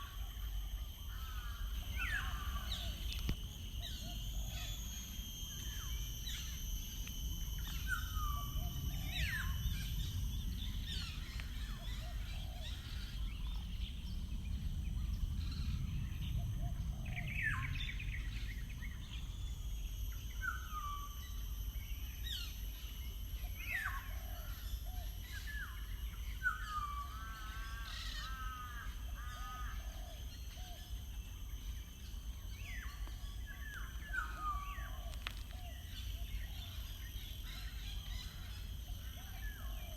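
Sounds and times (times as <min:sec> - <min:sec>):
steady low rumble: 0:00.0 - 0:20.4
birds whistling: 0:01.0 - 0:19.6, 0:22.1 - 0:39.9.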